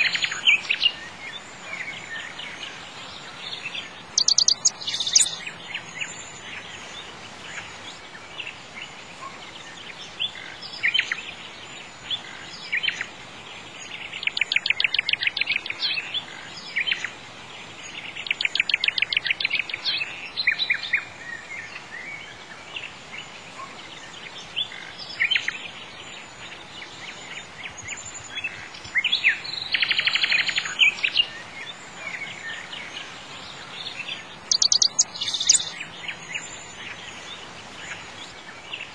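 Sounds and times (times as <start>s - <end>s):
birds chirping and singing: 0.0s - 38.9s
faint background hiss: 0.0s - 38.9s
bird trills: 4.2s - 5.4s, 34.5s - 35.8s.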